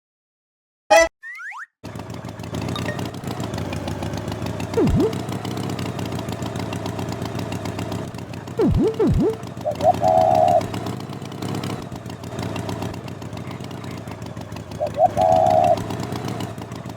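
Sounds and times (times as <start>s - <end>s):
engine idling: 1.8s - 16.9s
swooping whistle: 4.8s - 5.2s, 8.6s - 10.7s, 14.8s - 15.8s.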